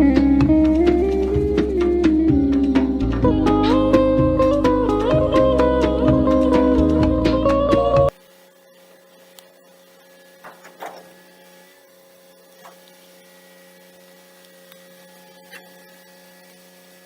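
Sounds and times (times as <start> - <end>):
steady mechanical hum: 8.1 - 17.0.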